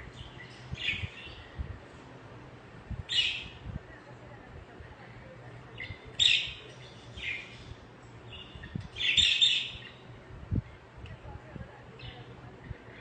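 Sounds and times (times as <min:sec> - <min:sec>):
budgerigars chirping: 0:03.1 - 0:03.5, 0:05.8 - 0:07.7, 0:08.3 - 0:10.0.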